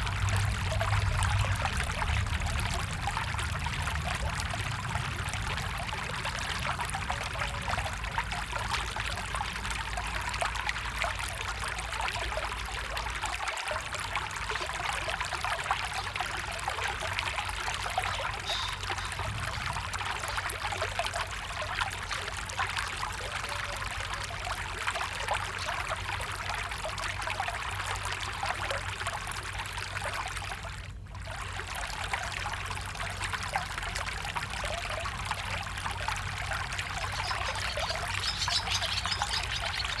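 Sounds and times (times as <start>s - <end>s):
stream splashing and trickling: 0.0s - 40.0s.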